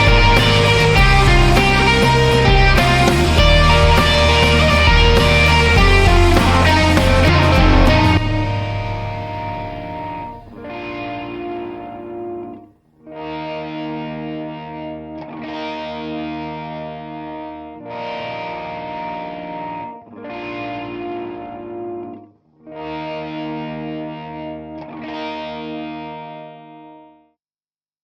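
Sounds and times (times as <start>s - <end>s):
distorted electric guitar strumming: 0.0s - 22.2s.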